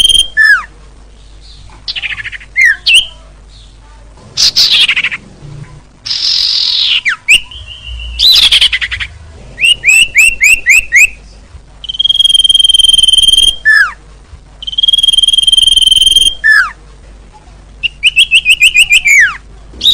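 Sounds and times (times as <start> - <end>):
long bird whistles: 0.0 - 0.7, 6.1 - 9.0, 9.6 - 11.2, 11.8 - 14.0, 14.6 - 16.8, 17.8 - 19.9.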